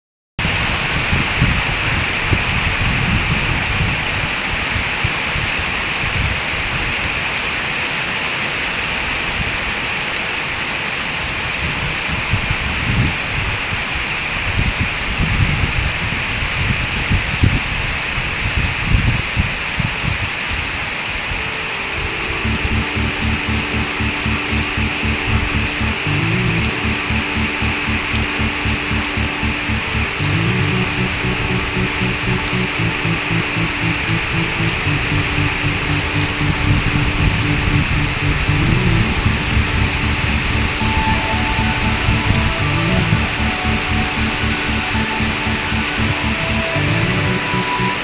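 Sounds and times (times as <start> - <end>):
steady rain falling: 0.4 - 48.0
low rumbles: 22.4 - 47.1.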